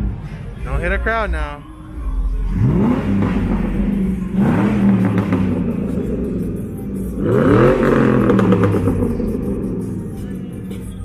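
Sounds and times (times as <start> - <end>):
car engine revving: 1.3 - 11.0.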